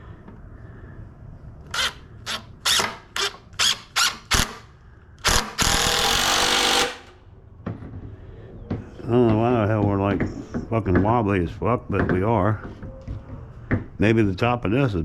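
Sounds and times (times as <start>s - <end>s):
cordless drill driving screw: 5.2s - 7.1s.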